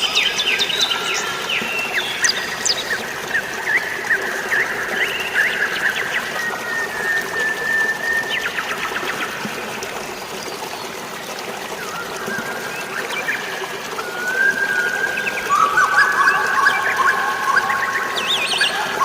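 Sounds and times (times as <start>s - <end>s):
trickling splashing water: 0.0s - 19.0s
birds whistling and chirping: 11.8s - 19.0s.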